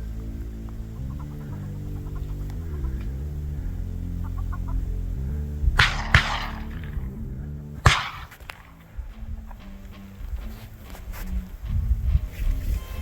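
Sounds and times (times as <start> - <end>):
background music: 0.0 - 13.0
shotgun shots with echo: 5.8 - 7.1, 7.8 - 9.1.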